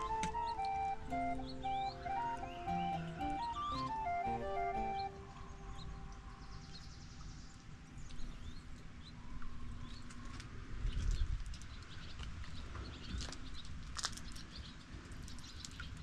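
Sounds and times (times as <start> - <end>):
small birds chirping: 0.0 - 16.0
wind rumbling on microphone: 5.5 - 16.0.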